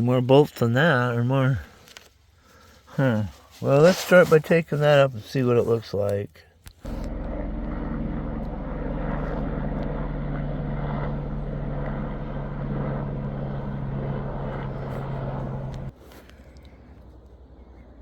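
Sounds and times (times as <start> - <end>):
propeller aircraft engine droning: 6.8 - 18.0.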